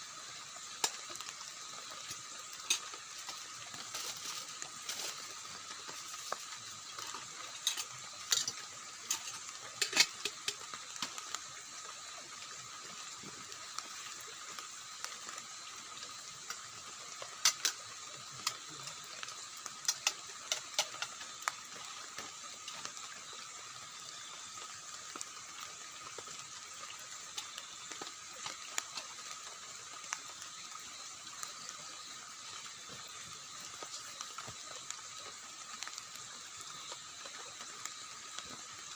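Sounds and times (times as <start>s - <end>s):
water hissing: 0.0s - 38.9s
water drips tapping: 0.6s - 12.0s, 16.4s - 23.4s.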